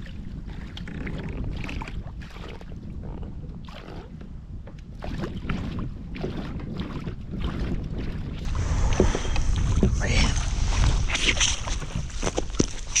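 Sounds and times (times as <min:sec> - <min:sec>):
water lapping and splashing: 0:00.0 - 0:13.0
wind rumbling on microphone: 0:00.0 - 0:13.0.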